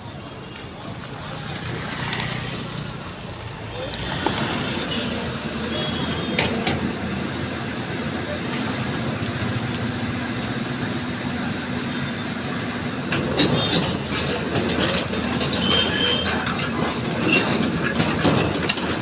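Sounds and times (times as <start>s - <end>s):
excavator engine hum: 0.7s - 19.0s
metal clanks: 13.1s - 19.0s.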